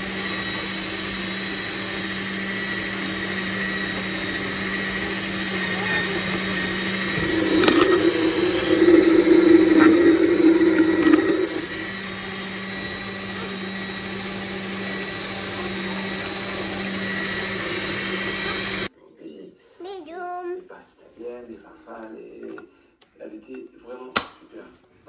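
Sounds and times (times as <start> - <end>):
juicer motor humming: 0.0 - 18.9.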